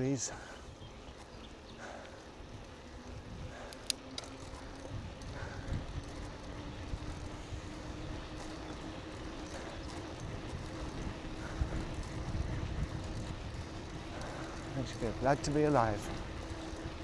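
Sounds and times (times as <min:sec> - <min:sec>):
bicycle tyres and wind rumble: 0:00.0 - 0:17.0
sharp clicks: 0:03.6 - 0:04.6.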